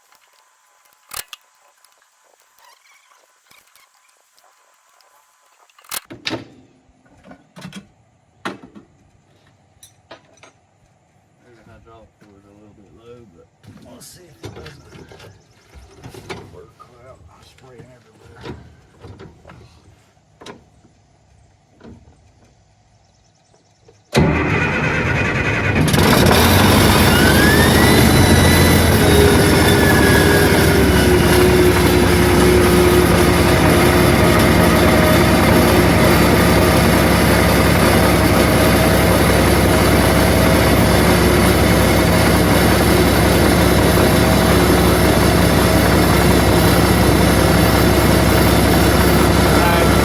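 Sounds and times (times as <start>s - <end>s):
bulldozer diesel engine: 24.1s - 50.0s
rising engine whine: 24.2s - 50.0s.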